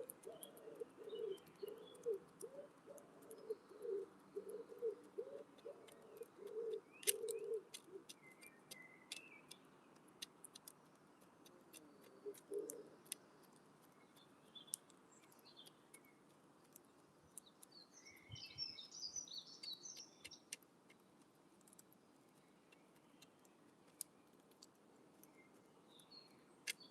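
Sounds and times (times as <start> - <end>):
wood pigeon cooing: 0.0 - 8.3, 11.4 - 13.2
beak pecking at feeder: 0.0 - 17.7
small birds chirping: 0.0 - 26.9.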